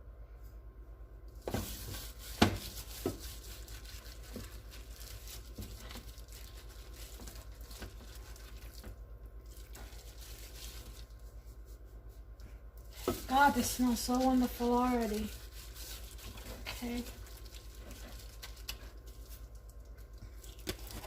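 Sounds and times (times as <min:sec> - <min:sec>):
rustling and light patter: 0:01.3 - 0:21.0.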